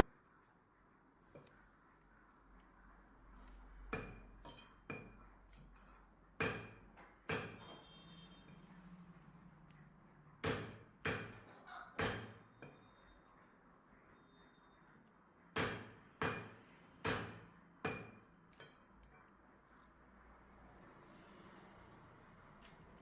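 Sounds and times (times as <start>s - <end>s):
cleaver chopping on chopping block: 10.4s - 11.4s, 12.0s - 12.4s, 15.6s - 18.2s.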